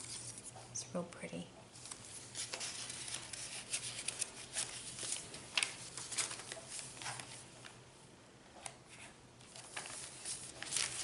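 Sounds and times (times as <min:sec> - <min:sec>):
paper pages rustling: 0:00.0 - 0:00.7, 0:01.7 - 0:07.8, 0:08.6 - 0:11.0.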